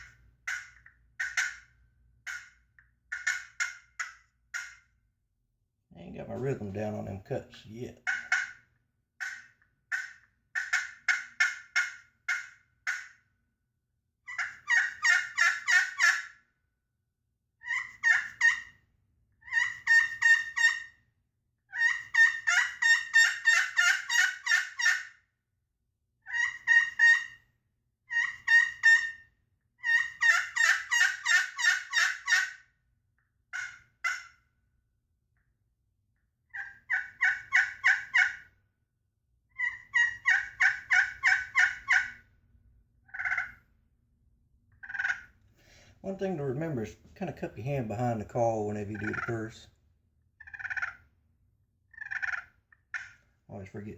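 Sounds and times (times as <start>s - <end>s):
turkey call hen notes: 48.9s - 49.4s.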